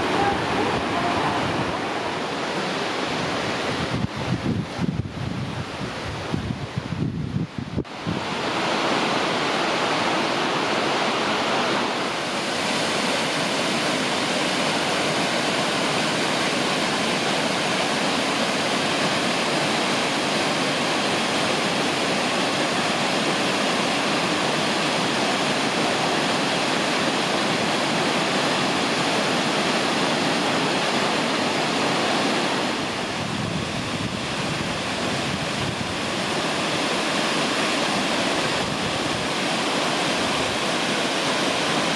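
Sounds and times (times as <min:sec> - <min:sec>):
waterfall rushing: 0:00.0 - 0:07.0, 0:07.6 - 0:41.9.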